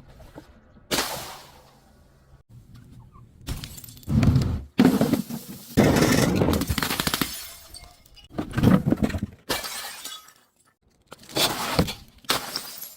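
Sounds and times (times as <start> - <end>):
glass bottles shattering: 5.2 - 8.4, 9.0 - 12.9.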